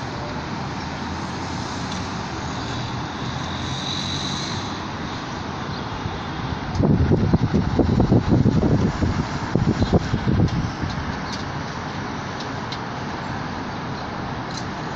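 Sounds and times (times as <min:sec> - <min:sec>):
faint high whine: 0:00.0 - 0:14.9.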